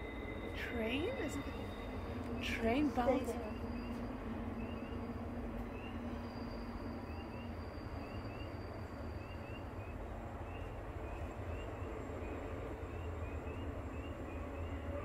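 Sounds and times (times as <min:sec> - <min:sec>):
low outdoor rumble: 0:00.0 - 0:07.2.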